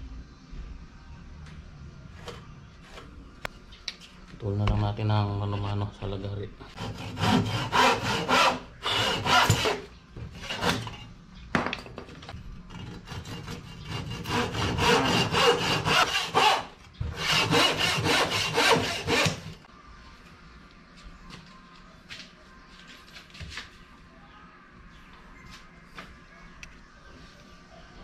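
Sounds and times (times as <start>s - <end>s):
hand saw rasping through wood: 6.8s - 9.8s, 13.0s - 19.6s.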